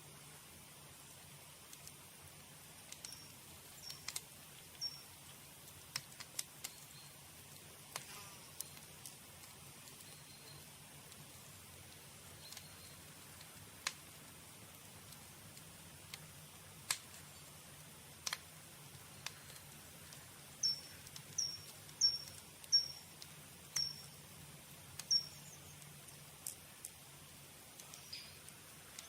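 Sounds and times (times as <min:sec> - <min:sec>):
campfire crackling: 0:00.0 - 0:29.0
bird chirping: 0:02.9 - 0:05.2, 0:06.6 - 0:07.2, 0:09.9 - 0:10.7, 0:12.3 - 0:13.1, 0:20.5 - 0:23.1, 0:23.7 - 0:24.2, 0:25.0 - 0:26.0, 0:27.8 - 0:29.0.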